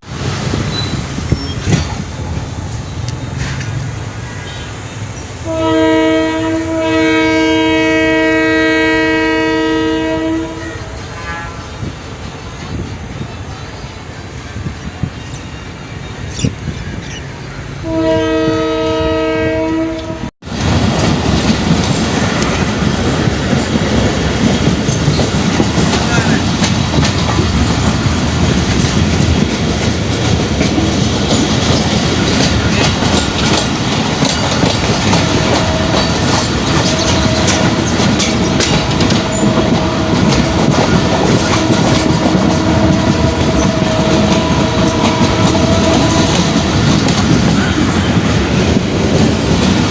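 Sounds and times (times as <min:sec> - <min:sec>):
train rumbling on rails: 0:00.0 - 0:49.9
train horn: 0:05.4 - 0:11.9, 0:17.8 - 0:20.3, 0:34.6 - 0:48.3.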